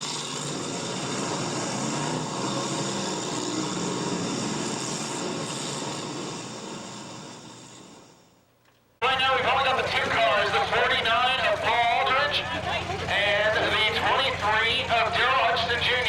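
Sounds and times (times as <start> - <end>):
race car engines running: 0.0 - 7.0, 9.0 - 16.0.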